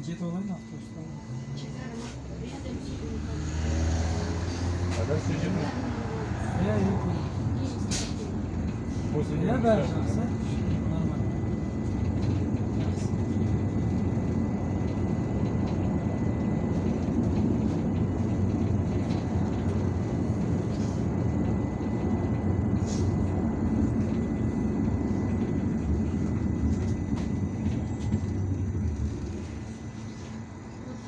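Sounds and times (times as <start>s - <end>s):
faint high whine: 0.0s - 2.7s
bus engine and road rumble: 0.0s - 31.0s.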